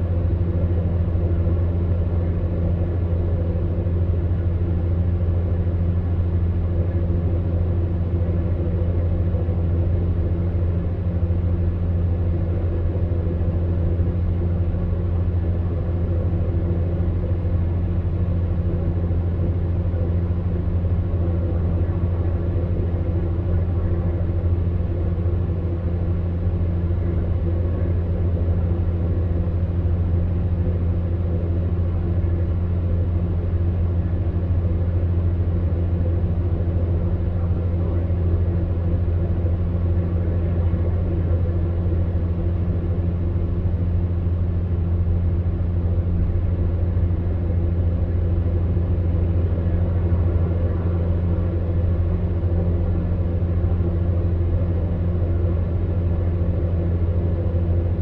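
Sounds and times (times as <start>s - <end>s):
fan heater humming: 0.0s - 58.0s.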